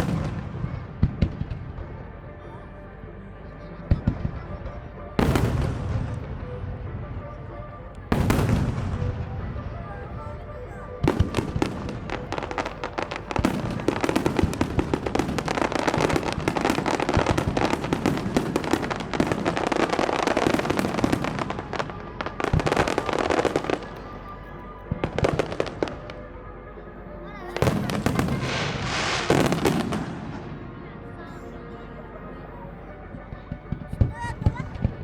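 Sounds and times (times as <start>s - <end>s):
fireworks bangs: 0.0s - 1.8s, 5.2s - 6.4s, 8.1s - 10.1s, 11.0s - 24.0s, 27.6s - 30.6s
fireworks bursting and crackling: 0.0s - 2.0s, 5.2s - 6.4s, 8.1s - 24.1s, 24.9s - 26.2s, 27.6s - 30.6s.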